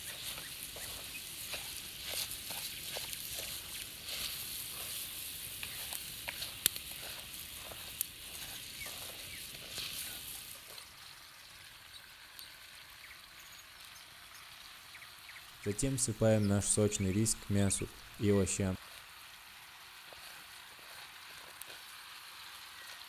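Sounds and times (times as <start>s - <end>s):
wooden spoon stirring in pan: 0.0s - 11.0s, 19.8s - 23.0s
rice sizzling in butter: 0.0s - 23.0s.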